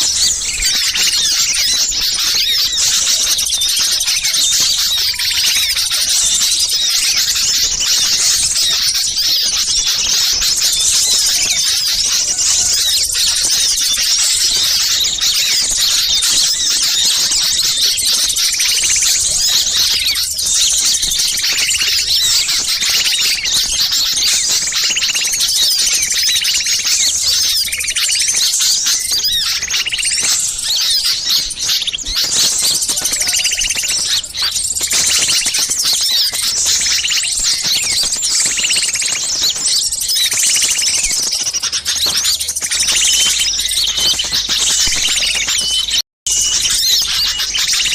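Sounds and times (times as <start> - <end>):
lower bird call: 0.0 - 47.9
songbirds chirping: 0.0 - 47.9.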